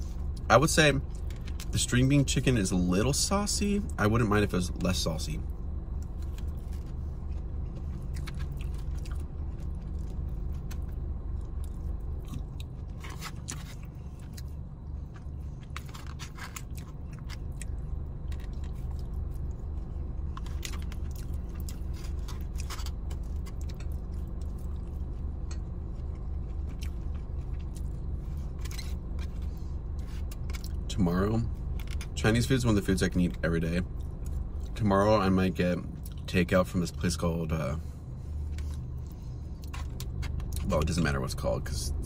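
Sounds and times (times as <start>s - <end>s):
steady low hum: 0.0s - 42.0s
chewing and mouth sounds: 5.5s - 30.9s.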